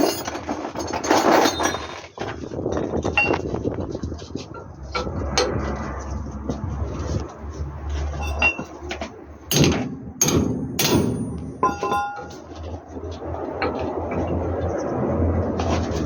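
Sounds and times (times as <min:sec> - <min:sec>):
metal knocks and clanks: 0:04.5 - 0:05.8, 0:08.1 - 0:14.7
metallic ring: 0:08.2 - 0:08.8, 0:09.5 - 0:12.6.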